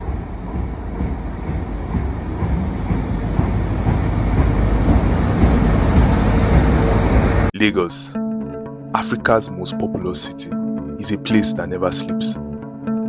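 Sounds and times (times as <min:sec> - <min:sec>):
train rumbling on rails: 0:00.0 - 0:07.5.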